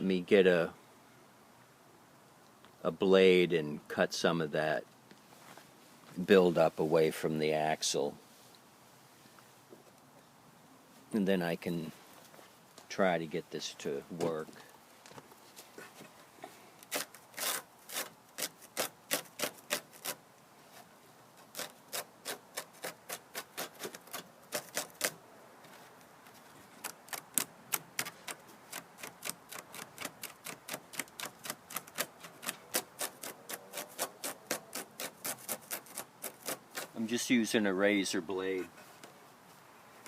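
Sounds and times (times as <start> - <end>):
razor blade scraping fibres: 16.8 - 20.2, 21.5 - 25.2, 26.8 - 37.0.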